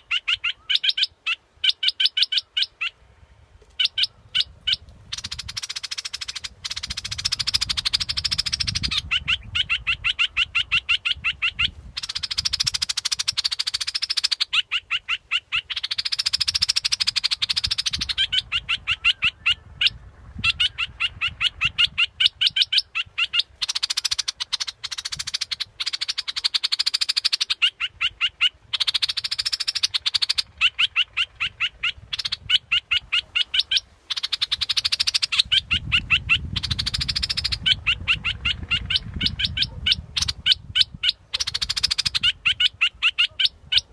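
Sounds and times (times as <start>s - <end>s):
bulbul chattering call: 0.0s - 3.0s, 3.7s - 43.9s.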